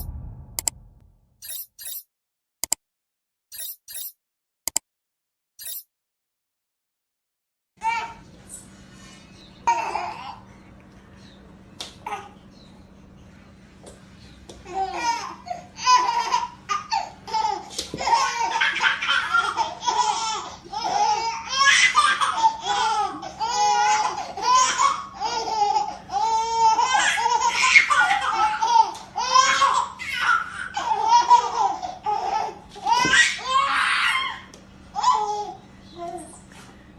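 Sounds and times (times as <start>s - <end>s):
baby laughing: 14.8s - 34.4s.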